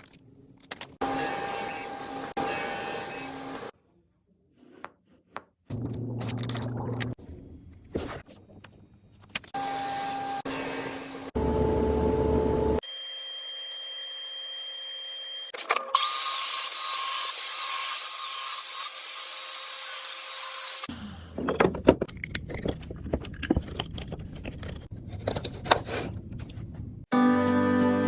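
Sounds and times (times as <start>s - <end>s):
music: 27.1s - 28.0s.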